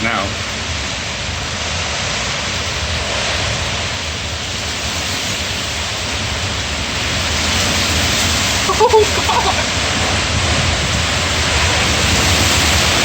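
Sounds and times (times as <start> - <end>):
strong wind rushing: 0.0 - 13.0.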